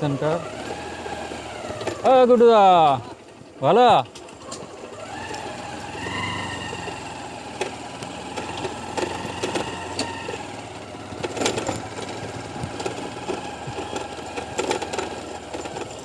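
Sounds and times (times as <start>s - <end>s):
engine running with whine: 0.0s - 16.0s
clicks and rattles: 11.2s - 16.0s.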